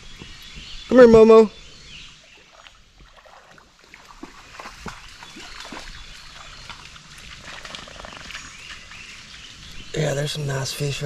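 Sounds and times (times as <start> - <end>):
creek water sloshing: 1.9 - 10.6
small water splashes: 2.2 - 9.9.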